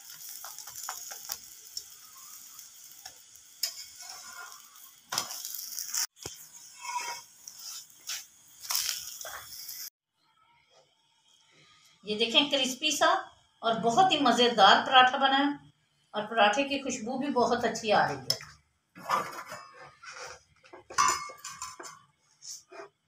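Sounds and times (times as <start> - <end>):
ghee sizzling on a pan: 0.0 - 10.0
metal spatula scraping and tapping pan: 0.2 - 2.0, 3.0 - 9.4, 19.0 - 22.9.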